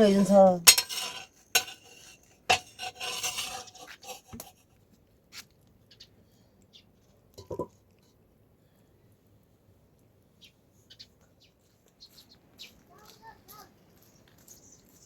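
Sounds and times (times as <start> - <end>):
metal utensils and dishes clinking: 0.0 - 4.6.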